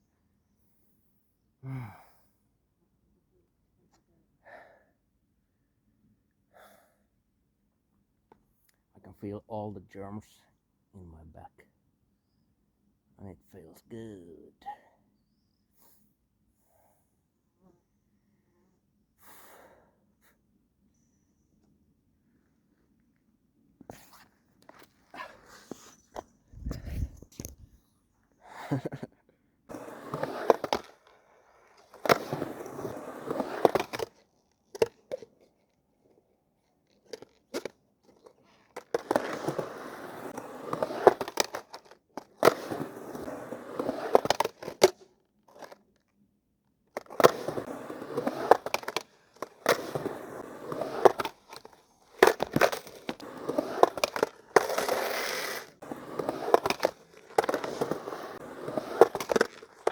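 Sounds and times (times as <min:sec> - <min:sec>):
skateboard wheels rolling and grinding: 0:23.9 - 0:27.8, 0:29.7 - 0:35.7, 0:36.4 - 0:45.8, 0:47.0 - 0:59.9
skateboard clacking: 0:29.7 - 0:35.2, 0:38.8 - 0:45.8, 0:47.0 - 0:59.9.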